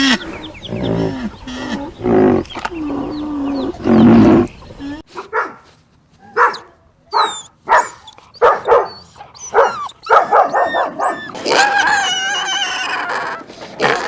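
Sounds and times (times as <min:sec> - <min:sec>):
dog barking: 0:05.2 - 0:05.6, 0:06.2 - 0:11.3
dog whining: 0:06.5 - 0:13.4.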